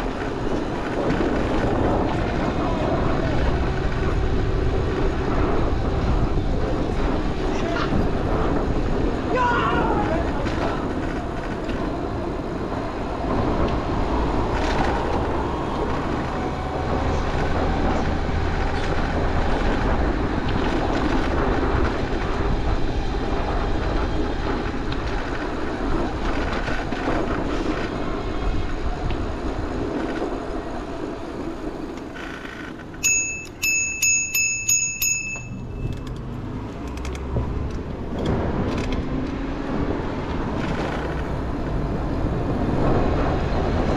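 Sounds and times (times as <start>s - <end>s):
city street traffic: 0.0s - 43.9s
bicycle bell ringing rapidly: 33.0s - 36.0s.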